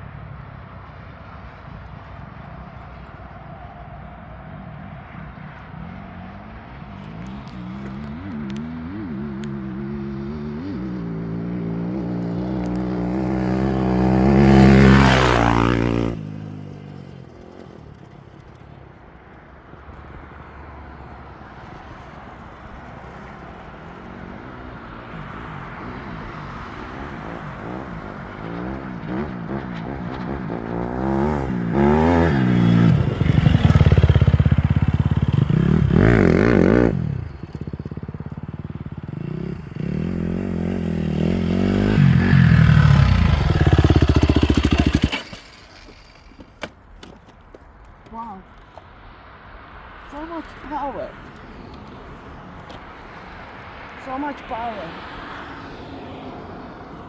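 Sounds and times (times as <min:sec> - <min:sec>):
motorcycle engine accelerating: 0:06.9 - 0:18.8, 0:23.9 - 0:48.2.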